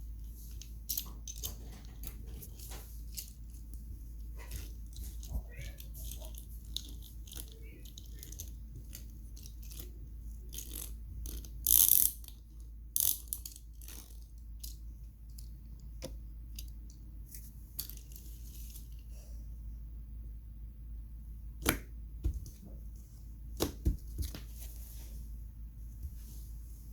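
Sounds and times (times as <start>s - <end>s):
steady low hum: 0.0s - 26.9s
plastic toy clicks and scrapes: 4.5s - 12.4s.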